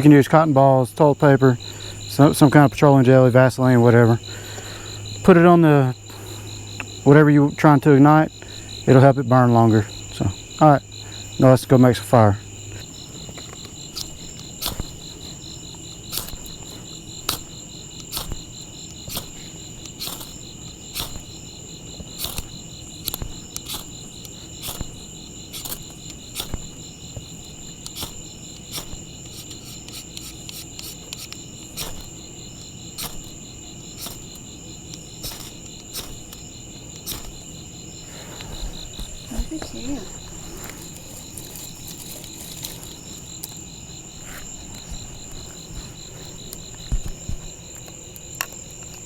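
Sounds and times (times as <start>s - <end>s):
insects trilling: 0.0s - 49.0s
knife scraping ferro rod: 12.7s - 39.2s, 40.0s - 43.6s.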